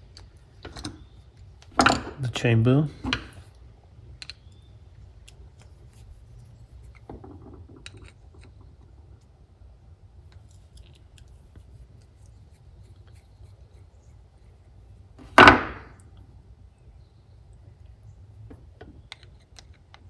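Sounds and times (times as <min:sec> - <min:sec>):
faint clicks of metal parts: 0:00.0 - 0:02.4, 0:03.0 - 0:09.4, 0:10.3 - 0:13.4, 0:17.5 - 0:20.0
low steady hum: 0:00.0 - 0:20.0.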